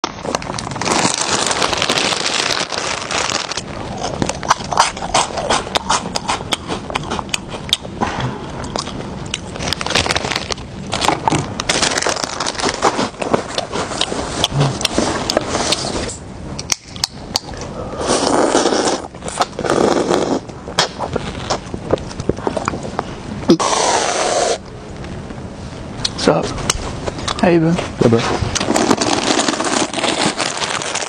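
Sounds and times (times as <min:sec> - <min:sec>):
crunchy snack eating: 0:00.2 - 0:07.9, 0:08.6 - 0:22.8, 0:28.5 - 0:31.0
chewing sounds: 0:03.9 - 0:10.1.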